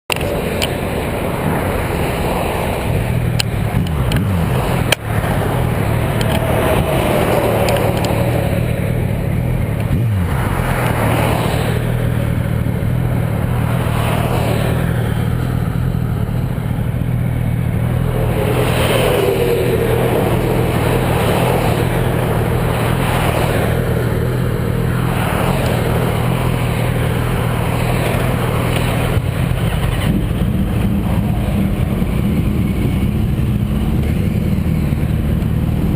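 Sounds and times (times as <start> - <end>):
vehicles passing: 0.1 - 35.9
motorcycle engine running: 3.0 - 35.9
wind rushing: 17.5 - 32.2.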